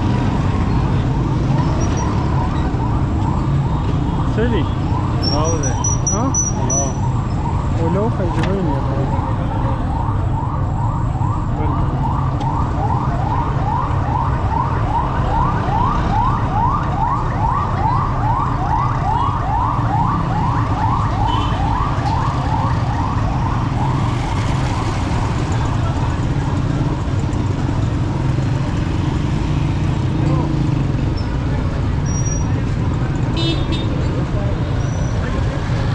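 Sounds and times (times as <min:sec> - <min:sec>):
street traffic rumble: 0:00.0 - 0:35.9
electronic siren yelp: 0:01.6 - 0:08.3, 0:09.4 - 0:27.4.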